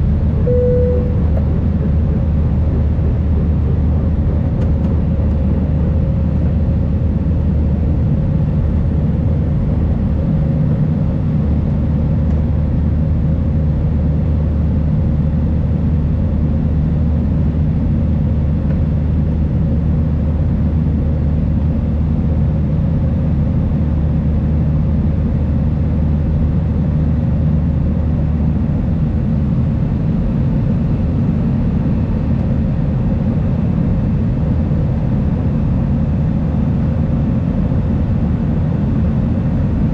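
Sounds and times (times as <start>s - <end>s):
jet engines at climb power: 0.0s - 39.9s
faint steady higher tone: 0.4s - 1.5s.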